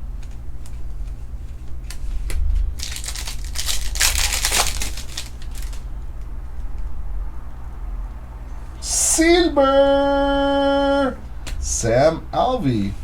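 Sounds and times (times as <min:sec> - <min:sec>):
cards clicking: 0:01.8 - 0:05.8
wrapper crinkling and tearing: 0:02.2 - 0:05.9.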